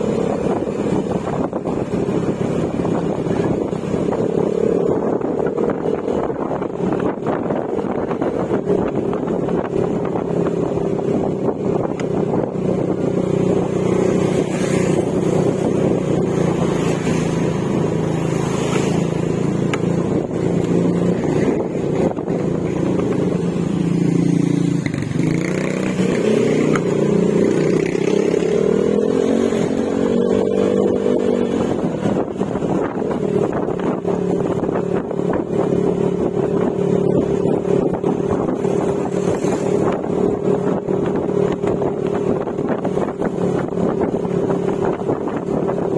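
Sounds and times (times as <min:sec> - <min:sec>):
scooter engine running: 0:00.0 - 0:45.9.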